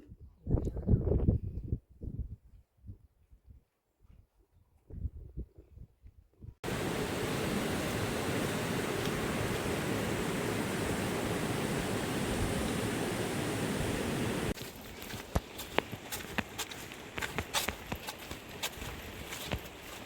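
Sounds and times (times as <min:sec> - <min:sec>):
rush of water: 0:06.6 - 0:14.6.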